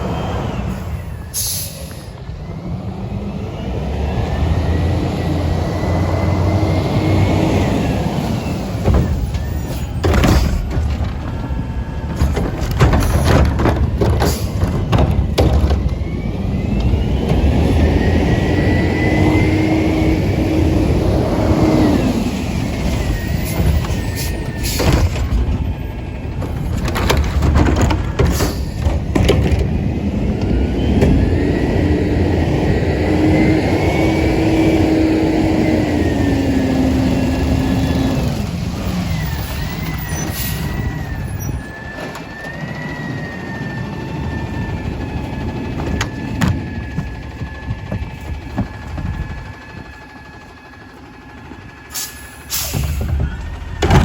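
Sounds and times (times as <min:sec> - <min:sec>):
garbage truck engine revving: 0:00.0 - 0:54.0
loud bangs and clatter: 0:08.8 - 0:16.1, 0:23.4 - 0:29.8, 0:52.7 - 0:54.0.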